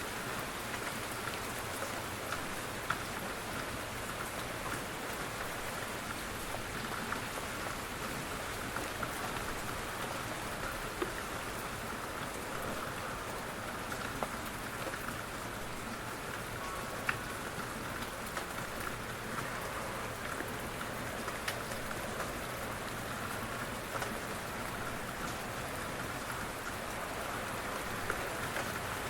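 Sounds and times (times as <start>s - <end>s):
rain falling: 0.0s - 29.0s
raindrop taps: 20.2s - 22.4s, 23.5s - 24.3s.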